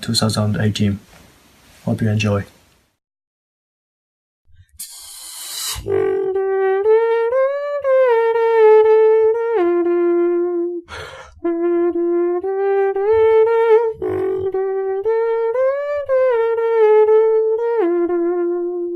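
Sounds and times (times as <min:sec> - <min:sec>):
hissing bursts: 0:04.8 - 0:05.9
hummed beatbox melody: 0:04.8 - 0:07.9, 0:11.4 - 0:18.9.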